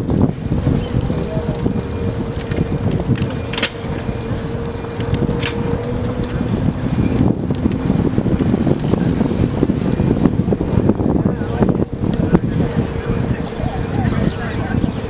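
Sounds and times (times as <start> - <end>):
bicycle rolling rumble: 0.0 - 15.0
wind buffeting microphone: 0.0 - 15.0.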